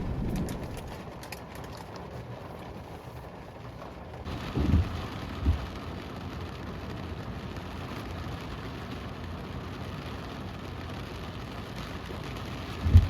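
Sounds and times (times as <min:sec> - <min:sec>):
low thumps: 0:00.0 - 0:01.0, 0:04.5 - 0:05.7
steady rain: 0:00.0 - 0:13.0.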